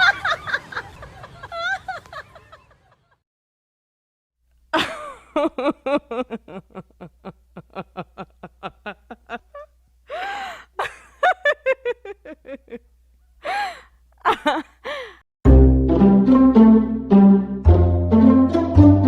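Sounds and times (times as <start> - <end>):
person laughing hard: 4.8 - 12.8, 13.4 - 15.2.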